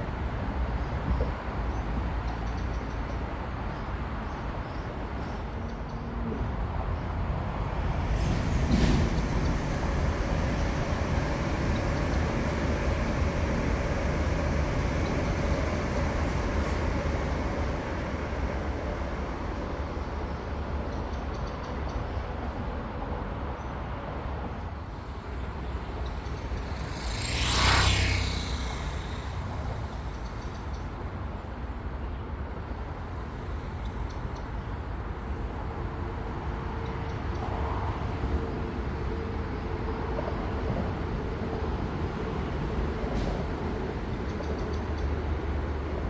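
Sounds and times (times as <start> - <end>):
distant traffic rumble: 0.7 - 21.4, 24.7 - 36.8
vehicle whooshing past: 25.5 - 30.6.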